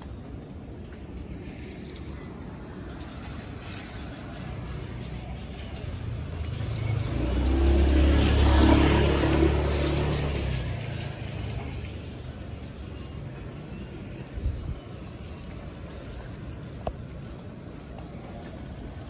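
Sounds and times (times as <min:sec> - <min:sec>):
vehicle passing by: 0:03.1 - 0:12.5.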